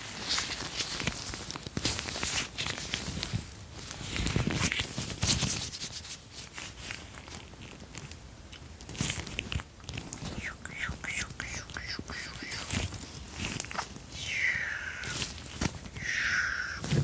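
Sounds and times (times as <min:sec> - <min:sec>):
scratchy rubbing and rattling: 0:00.1 - 0:08.0.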